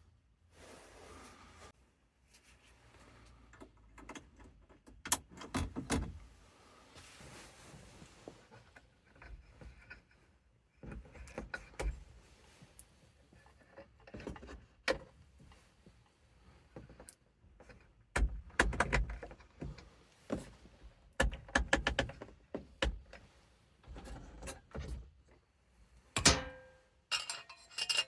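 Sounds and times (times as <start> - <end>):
handling clicks and knocks: 16.9 - 20.5.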